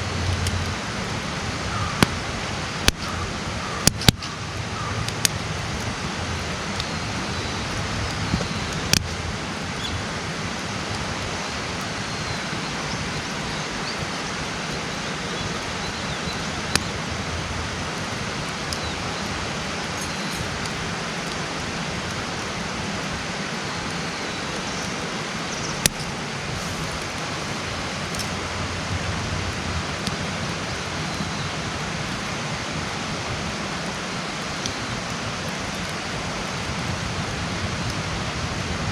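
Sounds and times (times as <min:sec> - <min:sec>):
campfire burning: 0:00.0 - 0:38.9
rushing hiss of fire: 0:00.0 - 0:38.9
sharp pops of burning wood: 0:01.9 - 0:02.2, 0:02.8 - 0:03.2, 0:03.8 - 0:04.4, 0:05.0 - 0:06.0, 0:06.7 - 0:14.0, 0:14.6 - 0:22.4, 0:25.7 - 0:27.3.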